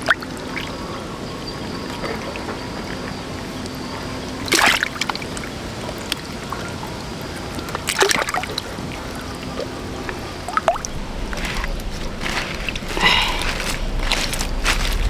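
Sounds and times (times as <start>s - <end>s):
water splashing: 7.8s - 15.0s.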